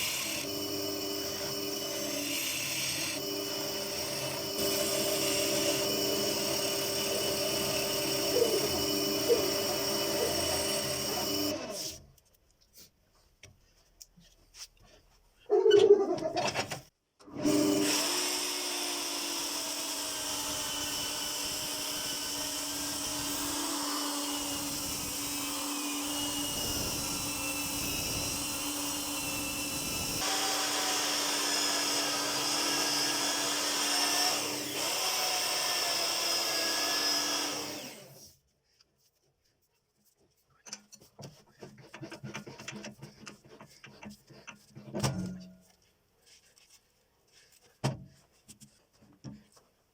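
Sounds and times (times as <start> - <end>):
electric power tool humming: 0.0 - 12.0, 17.4 - 38.2.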